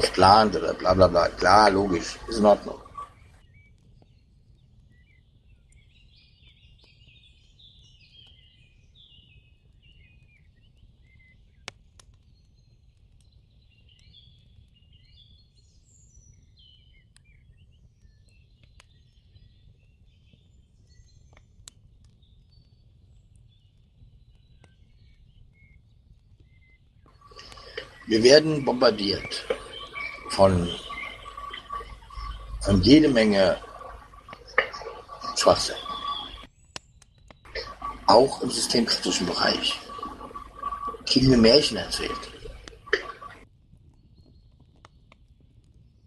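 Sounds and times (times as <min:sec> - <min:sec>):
steady low hum: 0:00.0 - 0:03.4, 0:27.2 - 0:36.5, 0:37.5 - 0:43.4
small birds chirping: 0:00.0 - 0:45.2.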